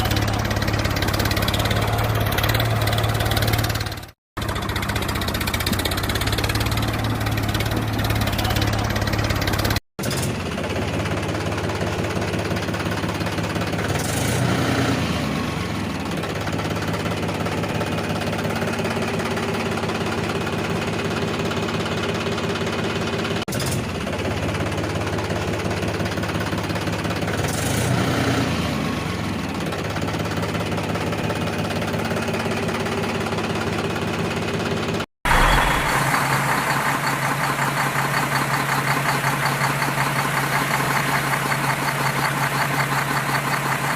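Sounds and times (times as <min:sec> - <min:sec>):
tractor engine idling: 0:00.0 - 0:09.8, 0:29.4 - 0:43.9.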